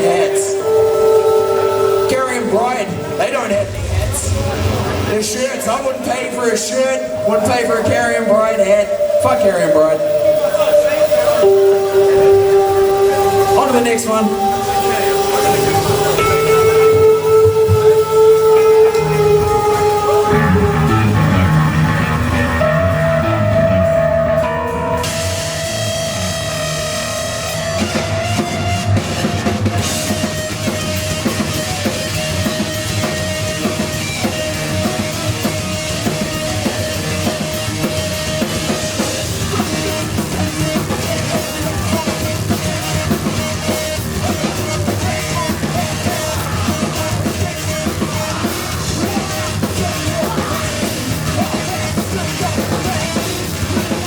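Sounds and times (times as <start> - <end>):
long held high note: 0.0 - 5.2, 5.9 - 40.5
heavy rock band playing: 0.0 - 54.0
pounding drum kit: 0.0 - 54.0.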